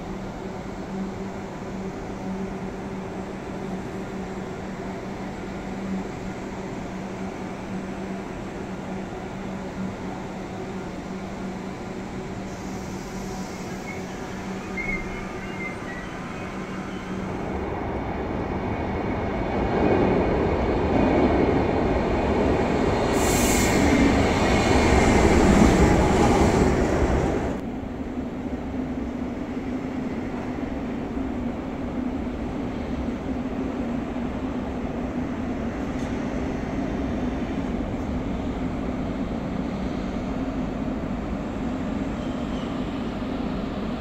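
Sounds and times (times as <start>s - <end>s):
arriving train rumble: 0.0s - 44.0s
standing train hum: 0.0s - 44.0s
high squeal: 12.7s - 17.3s.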